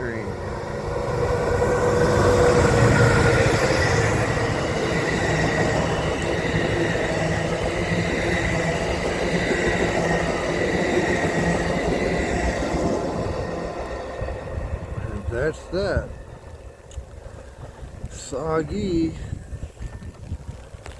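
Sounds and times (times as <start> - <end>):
passenger train rumbling past: 0.0 - 20.9.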